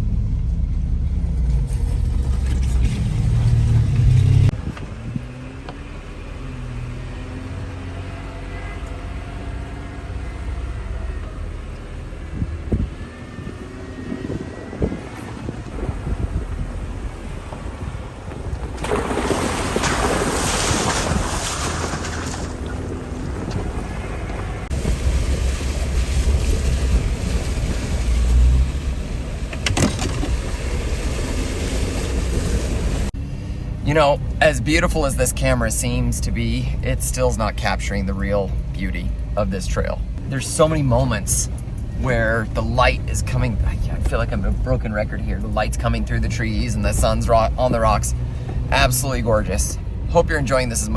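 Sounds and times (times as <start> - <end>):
engine drone with faint whine: 0.0 - 50.9
wind buffeting microphone: 4.3 - 5.5, 11.5 - 33.1.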